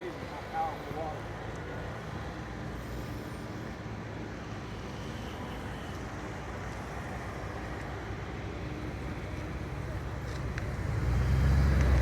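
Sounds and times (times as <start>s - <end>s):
motor vehicle running: 7.6s - 12.0s.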